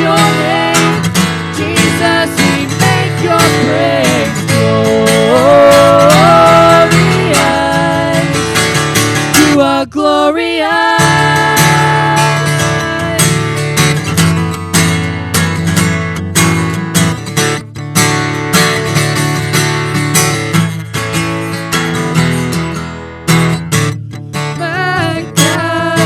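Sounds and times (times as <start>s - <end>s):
live worship song instrumental: 0.0s - 13.9s
acoustic guitar strumming: 0.0s - 26.0s.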